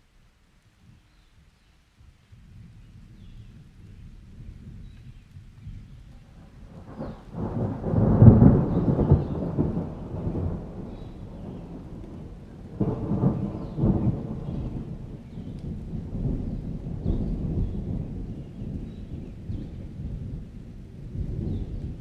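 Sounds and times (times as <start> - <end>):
steady rain: 0.0 - 22.0
thunder rolling: 6.3 - 22.0.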